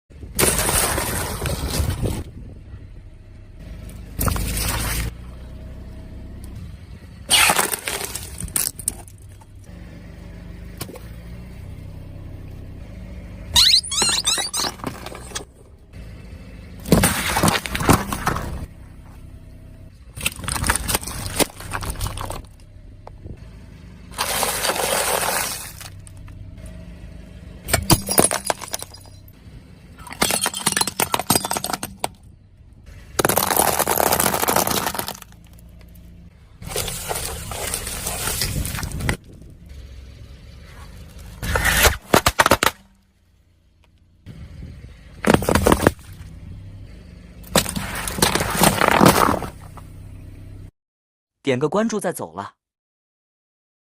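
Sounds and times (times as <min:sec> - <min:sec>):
breaking and shattering: 0:00.4 - 0:02.2, 0:07.3 - 0:09.2, 0:16.9 - 0:18.7, 0:20.2 - 0:22.6, 0:24.1 - 0:26.2, 0:27.7 - 0:29.4, 0:30.0 - 0:32.2, 0:33.2 - 0:35.6, 0:36.6 - 0:39.2, 0:45.2 - 0:46.2, 0:47.5 - 0:49.7.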